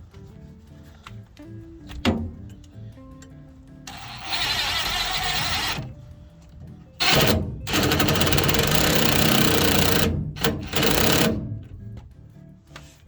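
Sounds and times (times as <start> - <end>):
power tool driving bolts: 3.9 - 6.0, 7.0 - 11.8.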